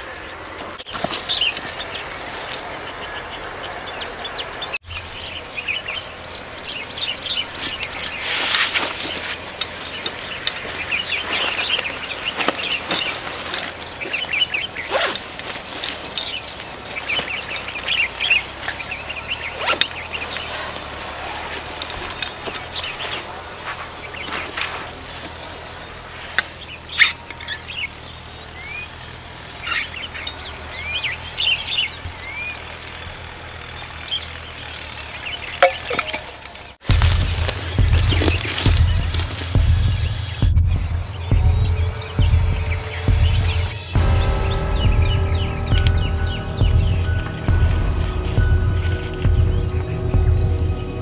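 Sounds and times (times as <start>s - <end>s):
small birds chirping: 0.0s - 51.0s
upward-sweeping bird calls: 0.0s - 51.0s
low background rumble: 2.6s - 51.0s.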